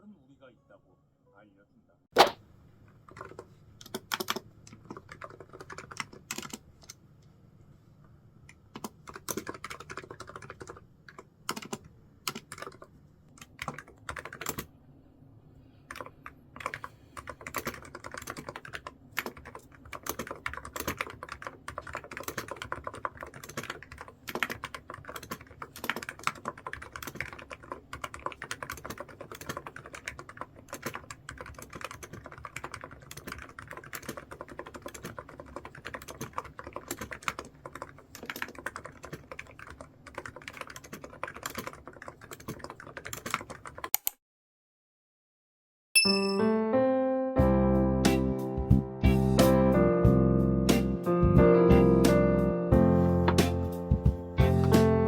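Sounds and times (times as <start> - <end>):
computer keyboard typing: 3.1 - 7.0, 8.7 - 14.7, 15.9 - 44.2.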